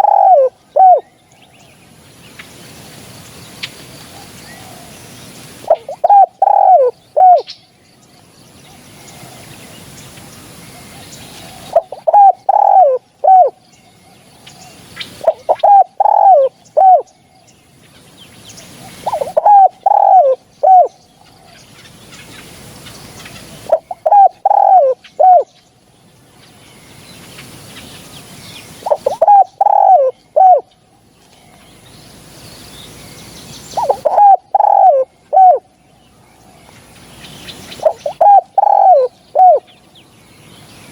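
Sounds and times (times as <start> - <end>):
dove cooing: 0.0 - 1.1, 5.6 - 7.5, 11.4 - 13.6, 15.2 - 17.1, 18.7 - 21.6, 23.3 - 25.5, 28.8 - 30.7, 33.8 - 35.7, 37.8 - 39.7.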